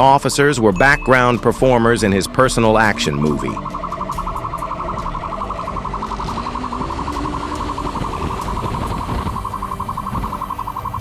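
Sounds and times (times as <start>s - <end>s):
car engine rumble and road noise: 0.0s - 11.0s
police siren warbling: 0.8s - 11.0s.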